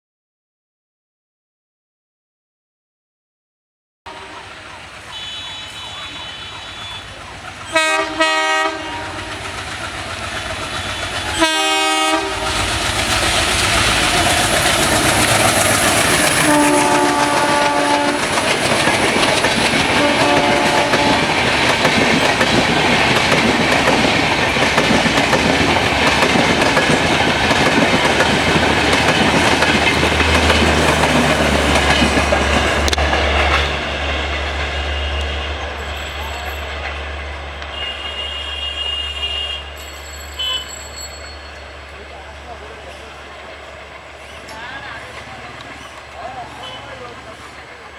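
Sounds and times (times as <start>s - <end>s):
train horn blasts: 4.1s - 9.6s, 10.8s - 12.8s, 16.2s - 18.4s, 19.9s - 21.5s, 32.7s - 36.5s, 37.6s - 40.8s
train passing at speed: 4.1s - 47.9s.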